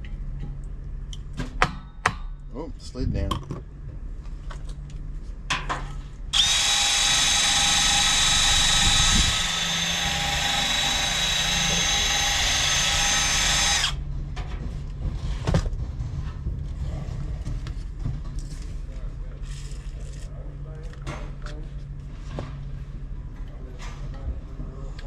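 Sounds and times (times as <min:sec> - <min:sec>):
power drill whining: 0:06.3 - 0:14.0.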